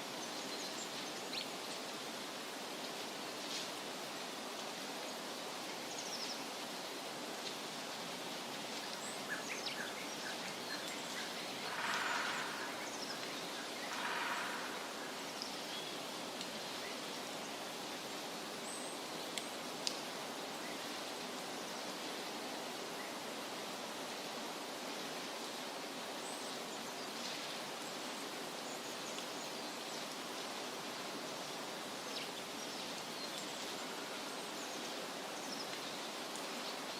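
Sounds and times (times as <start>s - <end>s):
hiss-like outdoor noise: 0.0s - 36.9s
rushes of noise: 11.4s - 15.6s.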